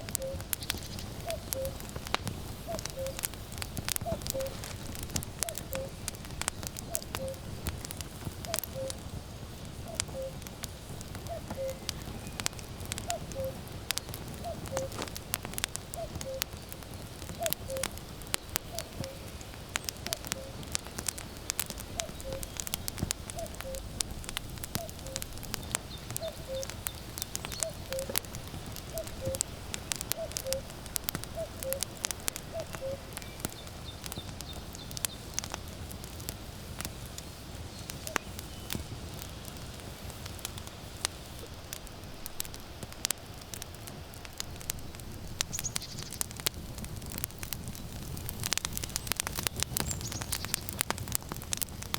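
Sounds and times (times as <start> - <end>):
cuckoo calling: 0.0 - 2.0, 2.6 - 3.4, 4.0 - 6.0, 6.8 - 7.5, 8.4 - 9.1, 9.8 - 10.4, 11.2 - 15.1, 15.9 - 16.6, 17.3 - 18.0, 18.6 - 21.2, 21.8 - 23.9, 24.7 - 28.2, 28.8 - 29.5, 30.1 - 30.7, 31.3 - 34.6
firewood crackling and popping: 0.0 - 51.9
low rumble of fire: 0.0 - 51.9.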